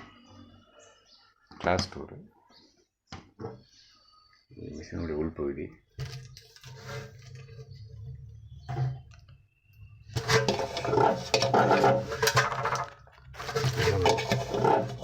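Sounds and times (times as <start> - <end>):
washing machine churning: 10.2 - 12.8, 13.4 - 15.0.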